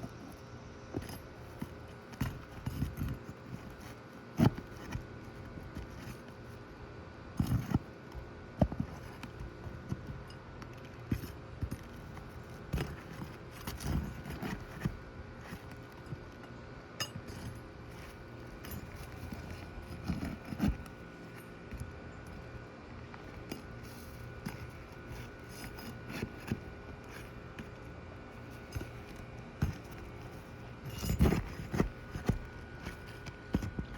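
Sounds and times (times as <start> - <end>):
hand tools scraping roof shingles: 23.3 - 33.9.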